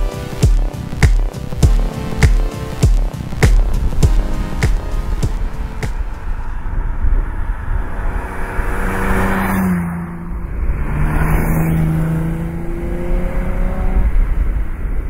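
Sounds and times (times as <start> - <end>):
sports car engine passing by: 6.2 - 15.0.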